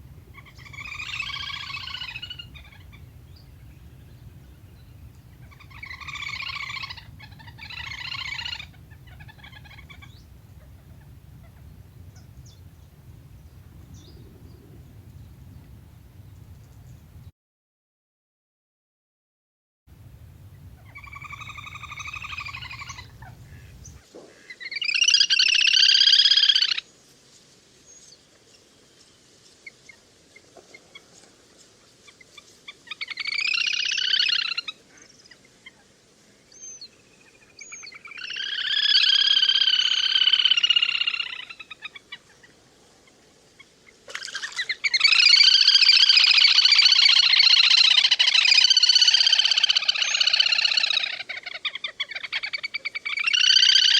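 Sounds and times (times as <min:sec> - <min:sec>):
grebe whinnying trilling calls: 0:00.0 - 0:12.7, 0:20.5 - 0:26.8, 0:32.9 - 0:34.8, 0:37.6 - 0:42.2, 0:44.1 - 0:53.9.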